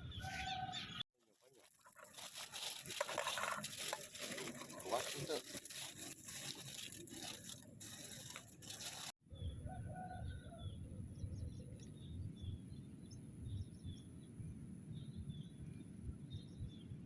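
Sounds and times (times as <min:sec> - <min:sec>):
close rustling and scraping: 0:01.2 - 0:09.2.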